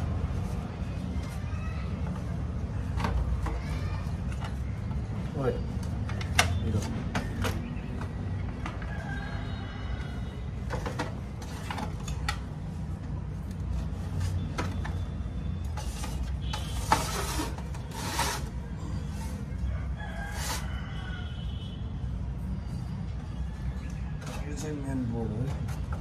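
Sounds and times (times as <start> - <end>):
rooster crowing: 8.8 - 10.5, 19.6 - 21.7
clicks and scrapes: 15.6 - 19.5, 20.3 - 20.8.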